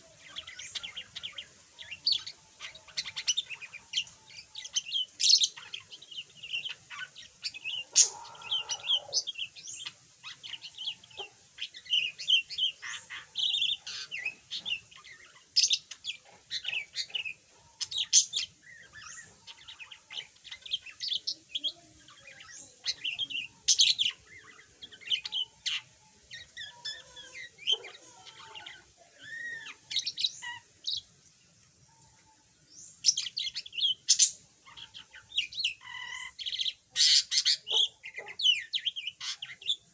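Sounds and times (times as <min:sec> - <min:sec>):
budgerigar chattering: 0:34.1 - 0:39.8.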